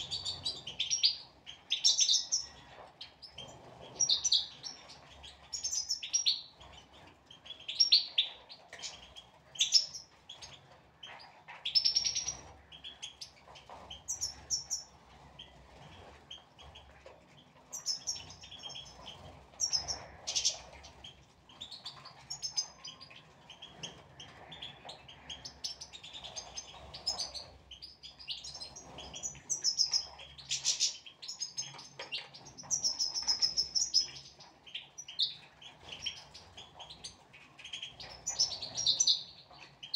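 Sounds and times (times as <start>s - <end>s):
goldfinches chirping and twittering: 0.0s - 39.9s.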